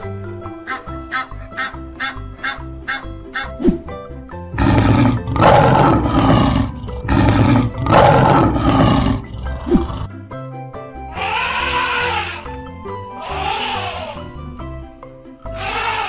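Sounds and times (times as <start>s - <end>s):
cheerful background music: 0.0s - 16.0s
lion roaring: 4.6s - 10.1s.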